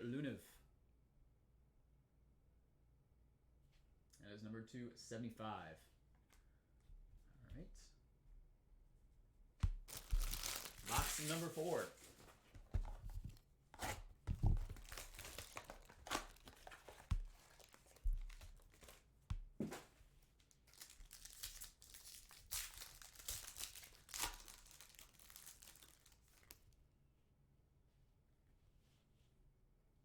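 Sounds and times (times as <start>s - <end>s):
packaging tearing and crinkling: 9.8s - 12.3s, 13.8s - 19.0s, 20.4s - 26.6s.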